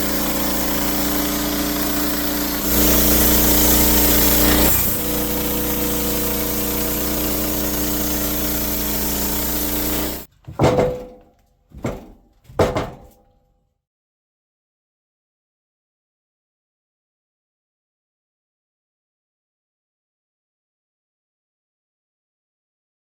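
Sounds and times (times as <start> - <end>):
small engine running: 0.0 - 10.3.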